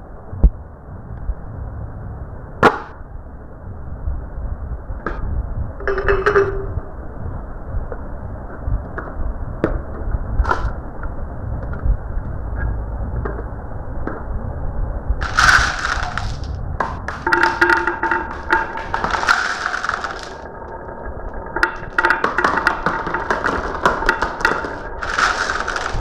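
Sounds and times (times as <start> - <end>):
marbles clicking on track: 5.8 - 6.8, 15.2 - 26.0
marbles knocking together: 5.8 - 6.8, 15.2 - 26.0
marbles rolling on track: 5.8 - 6.8, 15.2 - 26.0.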